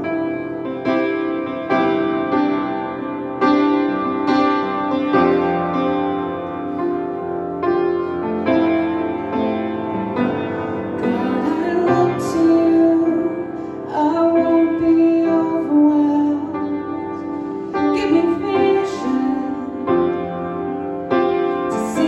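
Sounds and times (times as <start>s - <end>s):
piano accompaniment: 0.0s - 22.0s
woman singing slow song: 11.0s - 20.3s, 21.7s - 22.0s.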